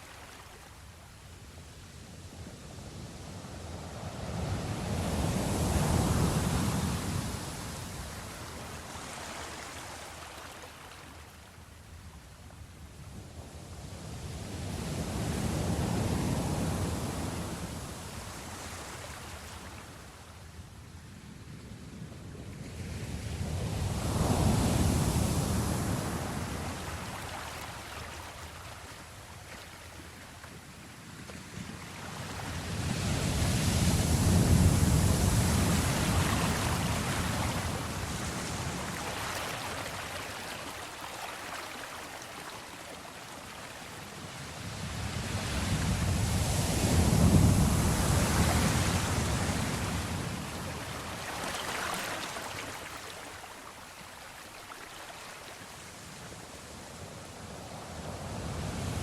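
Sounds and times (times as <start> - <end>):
ocean wave breaking on shore: 23.8 - 59.0.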